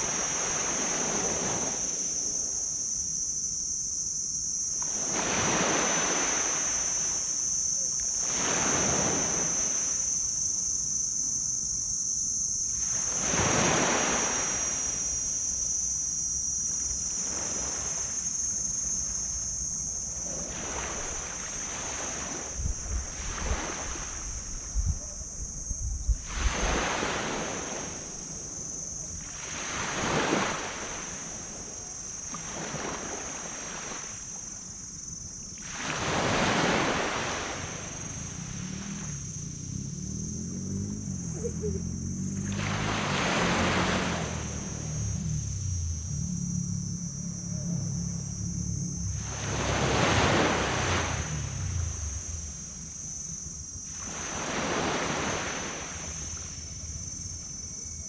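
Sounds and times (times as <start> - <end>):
waves breaking on beach: 0.0 - 2.4, 4.8 - 7.4, 8.0 - 10.0, 12.7 - 15.2, 20.2 - 24.7, 26.2 - 34.4, 35.6 - 39.3, 42.4 - 45.2, 49.2 - 52.6, 53.8 - 56.6
high insect drone: 0.0 - 58.0.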